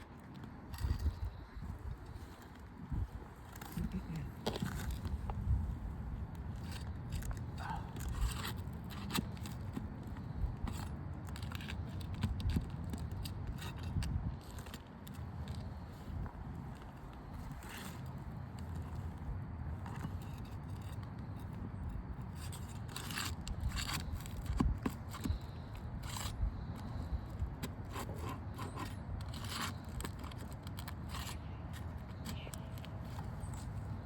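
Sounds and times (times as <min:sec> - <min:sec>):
metal bar scraping shingles: 0:22.2 - 0:32.4.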